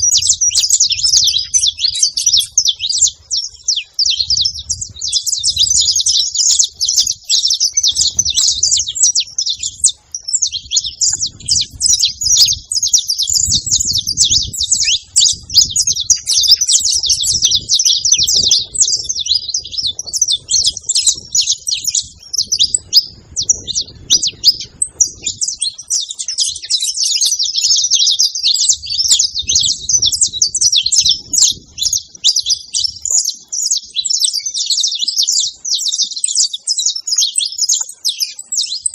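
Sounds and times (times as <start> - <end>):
finch singing chirps and trills: 0.0 - 38.9.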